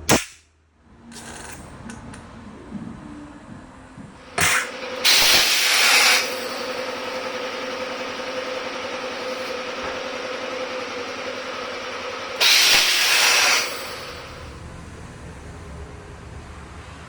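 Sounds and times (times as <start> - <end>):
sharp burst: 4.3 - 14.6.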